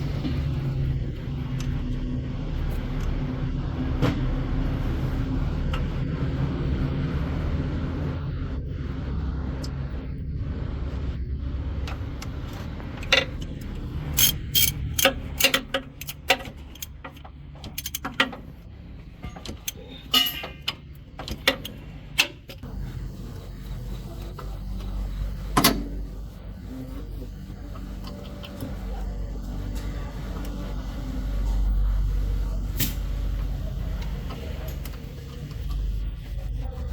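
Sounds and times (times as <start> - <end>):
truck engine rumbling: 0.0 - 36.9
sharp metallic clicks and knocks: 11.9 - 22.6.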